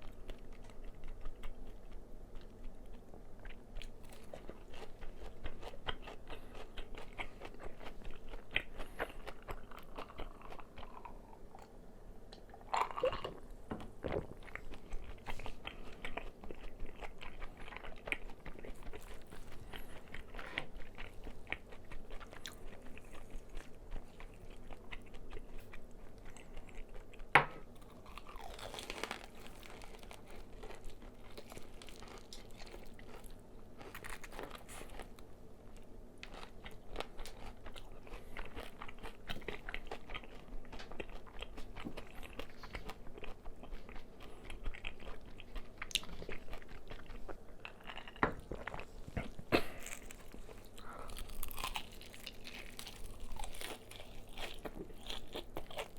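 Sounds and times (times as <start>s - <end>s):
chewing: 0.0s - 13.4s, 14.0s - 55.9s
crunching fried chicken: 14.0s - 48.8s, 49.4s - 55.9s.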